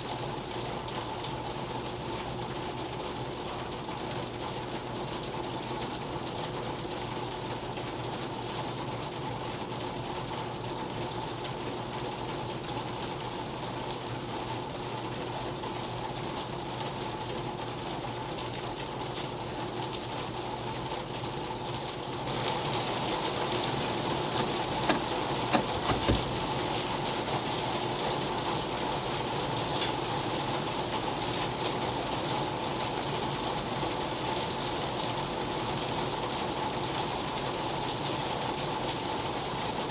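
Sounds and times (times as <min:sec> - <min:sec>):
steady rain falling: 0:00.0 - 0:39.9
sharp taps of raindrops: 0:23.5 - 0:26.8.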